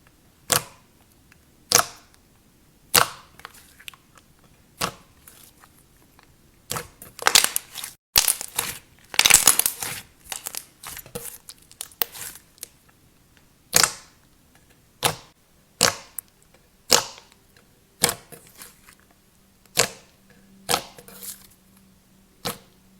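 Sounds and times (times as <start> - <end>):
clay slime squished by hand: 2.9 - 12.8, 13.7 - 14.2, 15.0 - 17.4.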